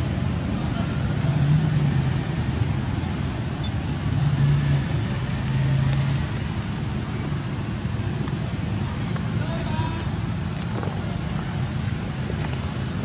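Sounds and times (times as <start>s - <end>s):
traffic engine hum: 0.0s - 13.0s.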